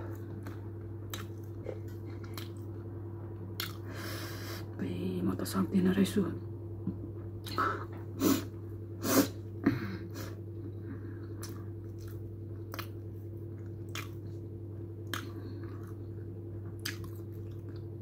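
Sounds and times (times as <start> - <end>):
person chewing food: 0.0 - 2.9, 3.6 - 3.9, 10.7 - 18.0
steady low hum: 0.0 - 18.0
wet mouth clicks and smacks: 1.1 - 1.6, 3.6 - 3.8, 11.4 - 13.0, 13.6 - 14.3, 15.0 - 16.0, 16.8 - 17.9.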